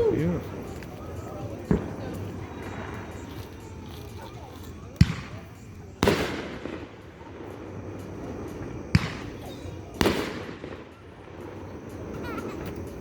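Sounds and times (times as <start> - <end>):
firework shell bursting: 0.0 - 13.0.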